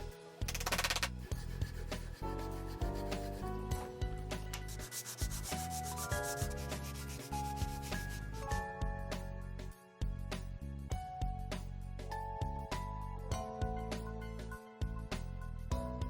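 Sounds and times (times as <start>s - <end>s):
background music with plucked notes: 0.0s - 16.0s
wood being sanded: 1.2s - 8.4s.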